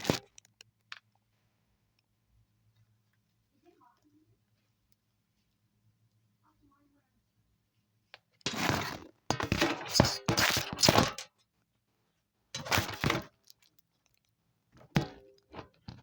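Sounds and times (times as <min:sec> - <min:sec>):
crackling rustling handling noise: 0:00.0 - 0:05.7, 0:08.1 - 0:11.6, 0:12.6 - 0:16.0.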